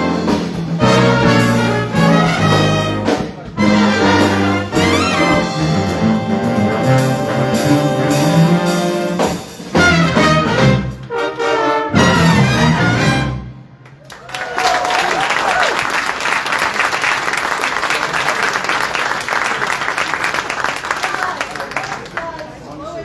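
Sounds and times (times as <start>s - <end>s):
jazz big band playing: 0.0s - 13.9s.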